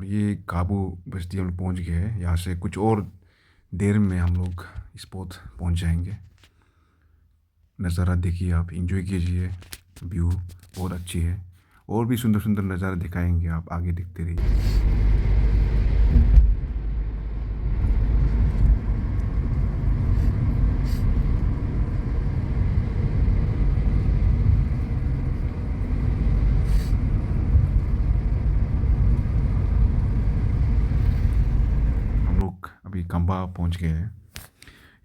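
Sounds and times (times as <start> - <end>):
car engine and tyre rumble: 14.4 - 32.4.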